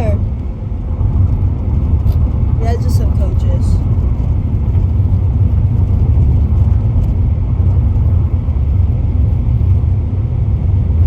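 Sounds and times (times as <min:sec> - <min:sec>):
motor vehicle low rumble: 0:00.0 - 0:11.0.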